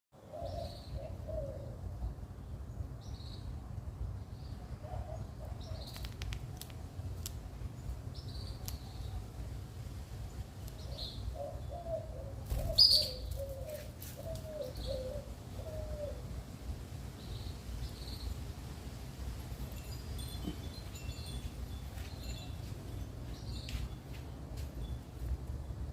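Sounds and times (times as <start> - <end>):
small bird chirping: 12.5 - 13.8.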